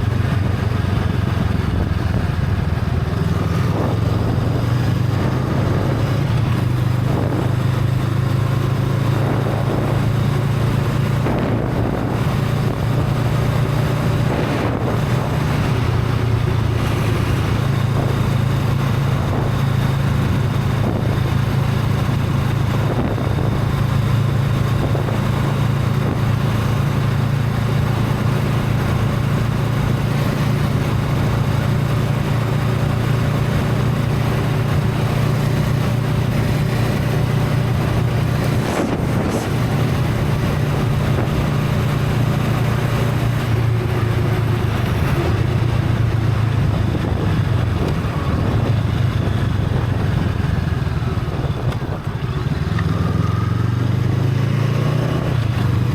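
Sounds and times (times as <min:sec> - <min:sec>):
motorcycle engine running: 0:00.0 - 0:55.9
wind noise on microphone: 0:00.0 - 0:55.9.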